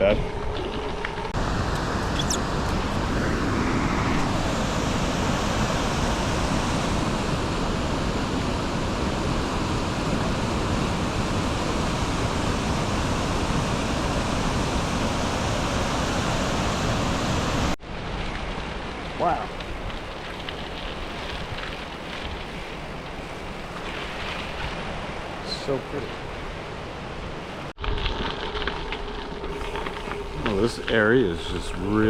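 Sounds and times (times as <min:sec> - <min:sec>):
bicycle tyres rolling on gravel: 0:17.8 - 0:25.8, 0:27.4 - 0:32.0.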